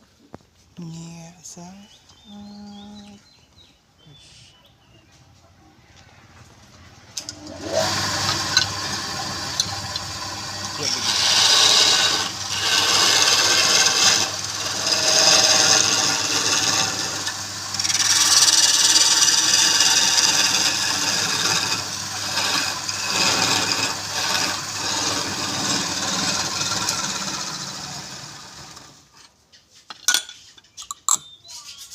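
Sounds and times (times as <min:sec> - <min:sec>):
wood scraping on a lathe: 0:07.2 - 0:29.1.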